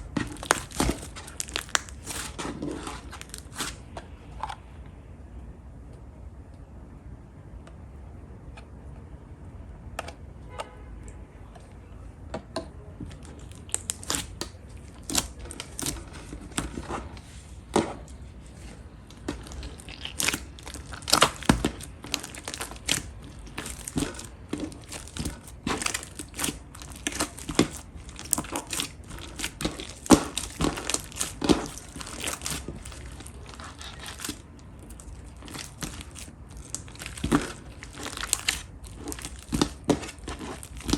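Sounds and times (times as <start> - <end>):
slime crackling and popping: 0.0 - 3.9, 13.2 - 17.4, 18.1 - 40.9.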